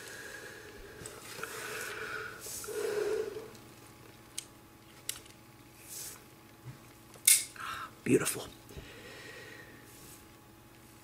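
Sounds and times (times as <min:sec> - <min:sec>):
clicks of toy parts handled: 0:07.2 - 0:07.5.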